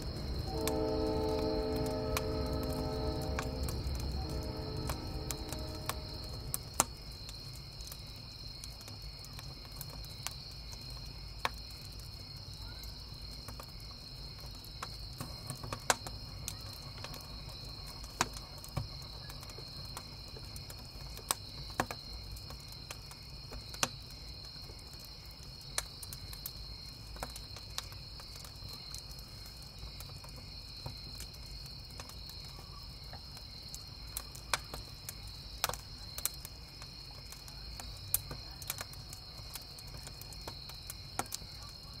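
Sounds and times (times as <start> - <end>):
low rumble: 0.0 - 7.8
crickets chirping: 0.0 - 42.0
firewood crackling and popping: 0.0 - 42.0.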